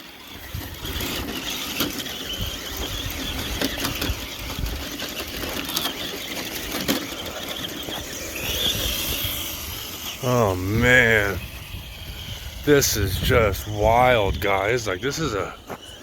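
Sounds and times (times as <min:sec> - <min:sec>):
electric motor whine: 0:00.0 - 0:16.0.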